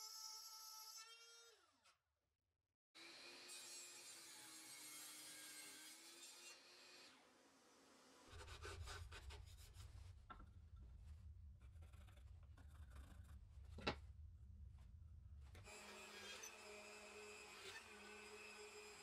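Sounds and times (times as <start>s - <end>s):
scratching and rubbing: 8.4s - 10.3s, 10.9s - 14.0s.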